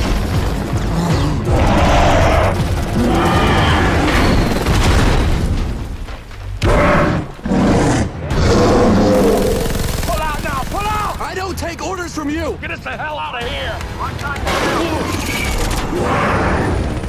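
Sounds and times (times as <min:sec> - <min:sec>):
loud dramatic music: 0:00.0 - 0:05.8.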